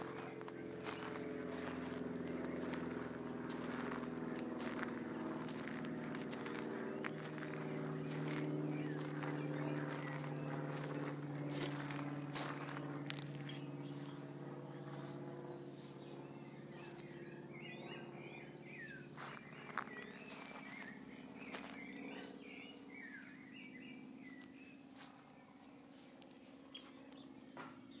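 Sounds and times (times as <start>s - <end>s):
small birds chirping: 0.0s - 28.0s
steady low hum: 0.0s - 28.0s.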